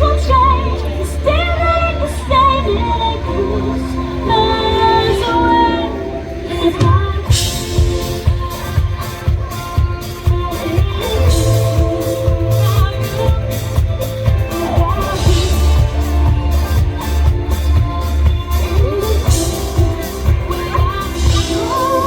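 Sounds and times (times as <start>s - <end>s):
guitar: 0.0s - 22.0s
drum kit playing a beat: 6.8s - 22.0s.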